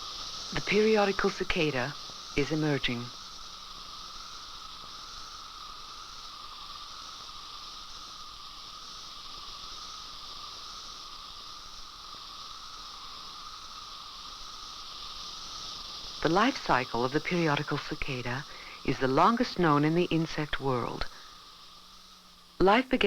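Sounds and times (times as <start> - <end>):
cicadas chorus: 0.0 - 23.0.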